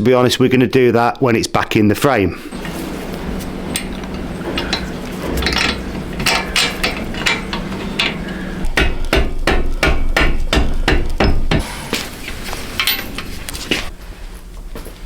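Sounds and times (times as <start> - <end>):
rubber mallet knocking metal parts: 2.5 - 11.6.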